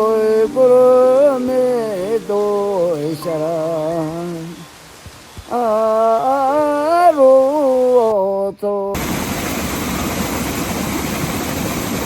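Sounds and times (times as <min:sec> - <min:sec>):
person singing long note: 0:00.0 - 0:04.8, 0:05.5 - 0:09.0
steady rushing noise: 0:09.0 - 0:12.0.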